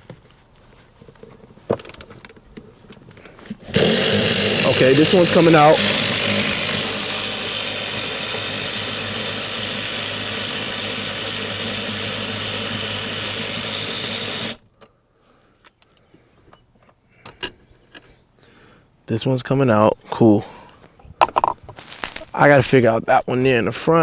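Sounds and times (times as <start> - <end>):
cordless impact wrench running: 1.8 - 2.1, 3.7 - 14.6.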